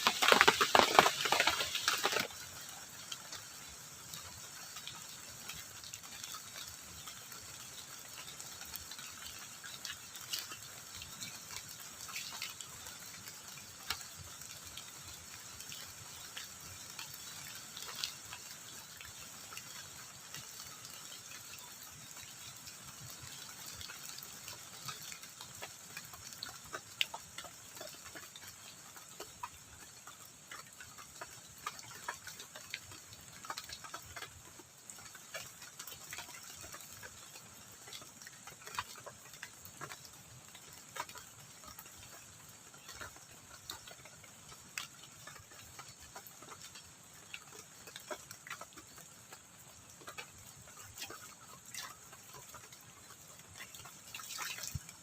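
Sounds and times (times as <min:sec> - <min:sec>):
rustling noise: 0:00.0 - 0:02.4
drips pattering on shelter: 0:00.0 - 0:55.0
steady rain: 0:00.0 - 0:55.0.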